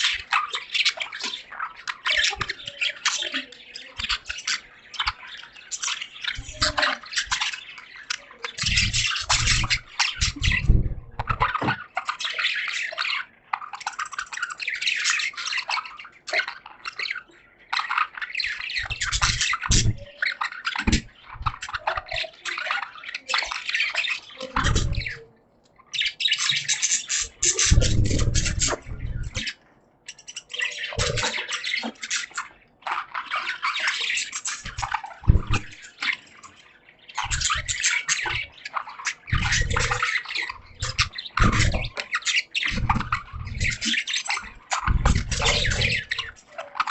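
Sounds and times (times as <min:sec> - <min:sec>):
budgies chattering and chirping: 0:00.0 - 0:46.9.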